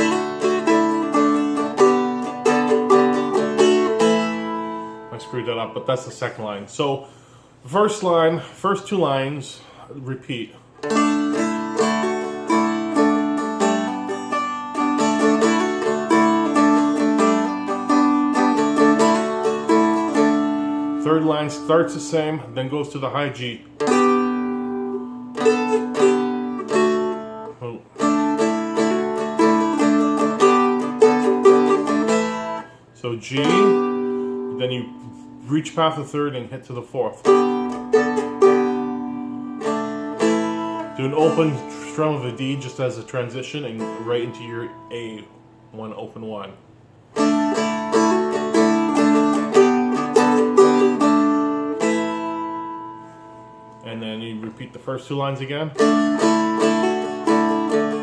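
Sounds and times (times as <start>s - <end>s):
dulcimer picked melody: 0.0s - 5.6s, 10.8s - 21.6s, 23.8s - 32.7s, 33.4s - 35.3s, 37.2s - 42.4s, 47.2s - 53.9s, 55.8s - 58.0s.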